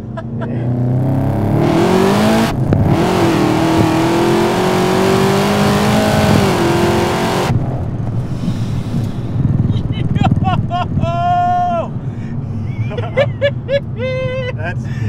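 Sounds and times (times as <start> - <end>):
car engine accelerating hard: 0.0 - 8.3.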